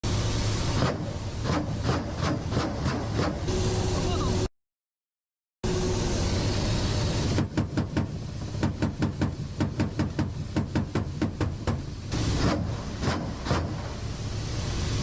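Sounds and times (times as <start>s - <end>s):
rapid sharp bangs: 0.8s - 3.5s, 7.3s - 14.0s.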